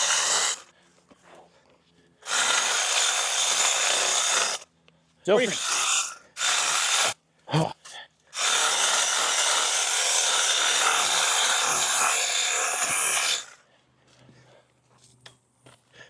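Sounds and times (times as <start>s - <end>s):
battery cutting tool cutting brush: 0.0s - 0.7s, 2.2s - 4.6s, 5.3s - 7.2s, 8.4s - 13.6s.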